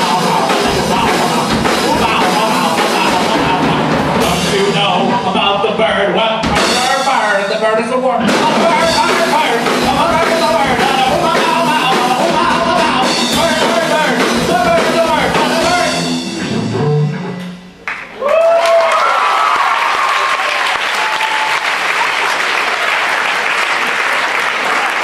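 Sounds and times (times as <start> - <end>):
rock band with vocals: 0.0 - 17.5
audience applause and cheering: 17.8 - 25.0.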